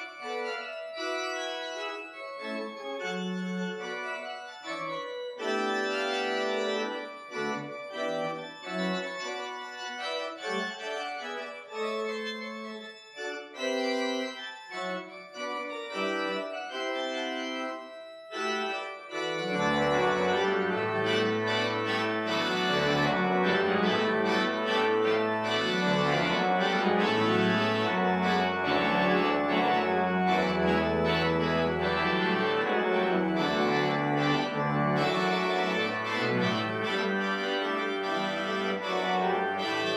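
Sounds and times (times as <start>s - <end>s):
pipe organ playing: 0.0s - 39.9s
deep pedal bass notes: 20.0s - 37.0s.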